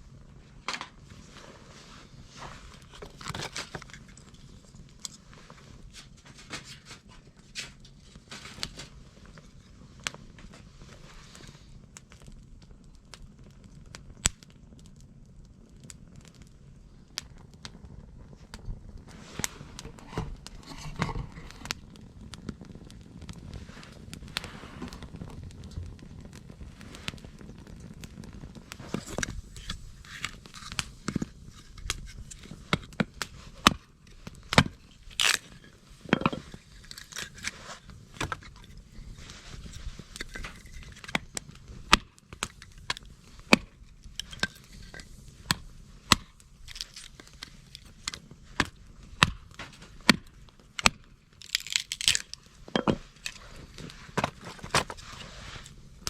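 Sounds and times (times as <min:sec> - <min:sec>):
dry twigs snapping and crackling: 0:02.6 - 0:05.2, 0:11.3 - 0:15.1, 0:18.4 - 0:56.0.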